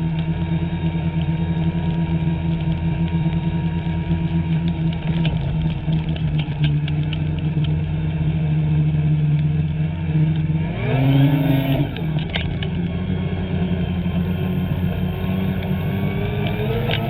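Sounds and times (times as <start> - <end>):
sharp clicks and clatter: 0.0 - 13.0, 13.8 - 17.0
snowmobile engine revving: 10.6 - 12.3, 13.3 - 17.0.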